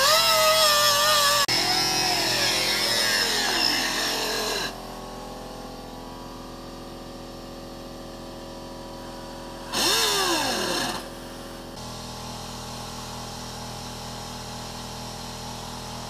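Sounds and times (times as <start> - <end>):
cut-off wheel tool whine: 0.0 - 5.0, 9.7 - 11.1.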